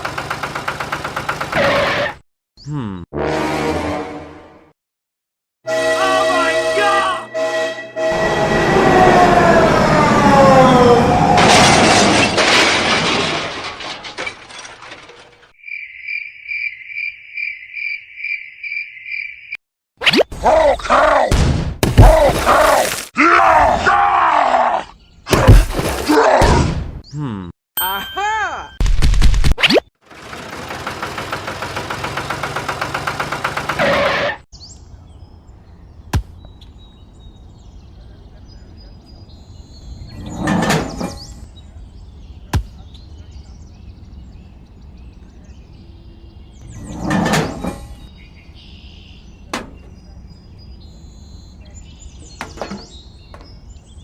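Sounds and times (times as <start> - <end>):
small engine running: 0.0 - 1.8, 30.1 - 33.8
loud crash with sliding tones: 11.2 - 15.5
cricket chirping: 15.6 - 19.6
faint bird chirps: 48.1 - 54.0.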